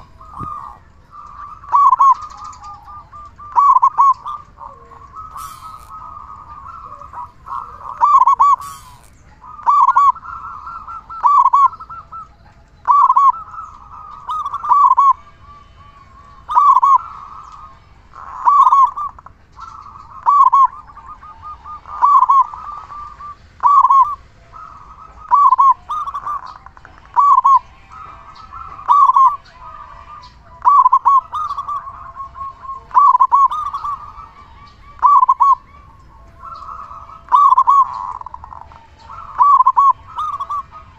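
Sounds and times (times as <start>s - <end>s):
dove cooing: 0.0s - 40.9s
small birds chirping: 0.0s - 40.9s.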